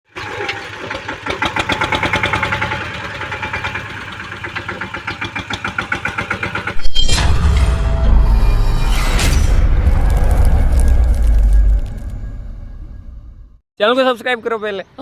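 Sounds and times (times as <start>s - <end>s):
tractor engine running: 0.2s - 6.8s.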